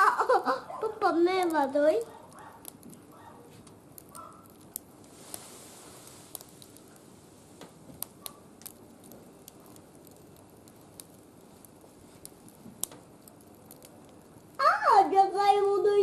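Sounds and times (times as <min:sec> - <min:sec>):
small fire crackling: 0:00.0 - 0:16.0.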